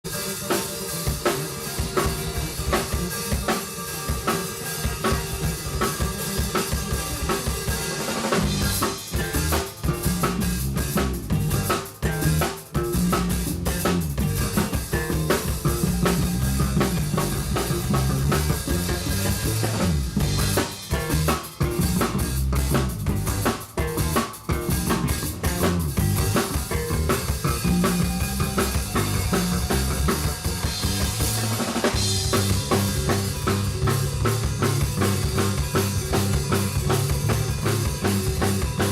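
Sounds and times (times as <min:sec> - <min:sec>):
drum kit: 0:00.0 - 0:38.9
live band playing: 0:00.0 - 0:38.9.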